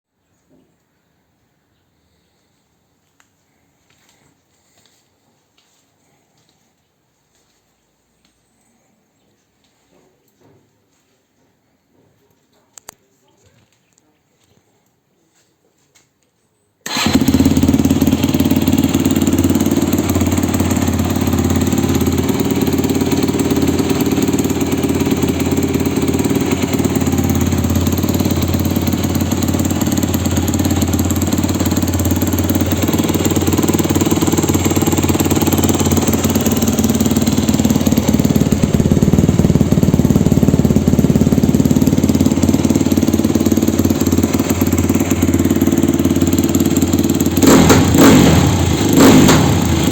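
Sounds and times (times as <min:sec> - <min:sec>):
motorcycle engine idling: 0:16.9 - 0:49.9.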